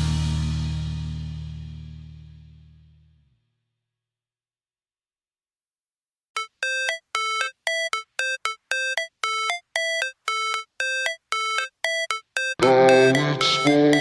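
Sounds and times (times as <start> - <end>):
bell-like synth riff: 6.4 - 14.0.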